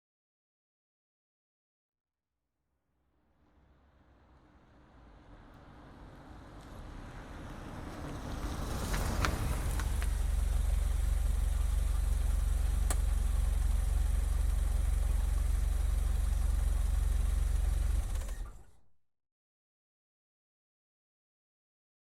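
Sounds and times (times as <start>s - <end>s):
car engine idling: 3.6s - 18.7s.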